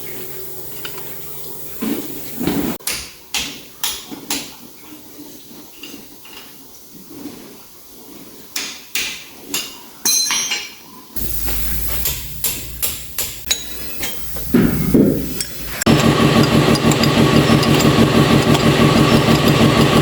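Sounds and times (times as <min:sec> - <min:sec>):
hammer striking metal: 0:10.1 - 0:20.0.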